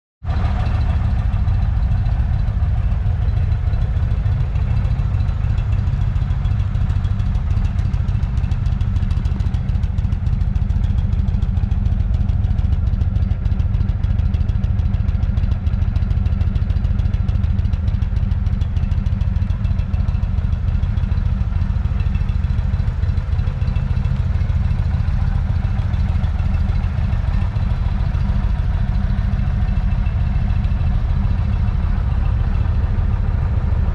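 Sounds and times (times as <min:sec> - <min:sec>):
motorcycle engine idling: 0:00.2 - 0:33.9.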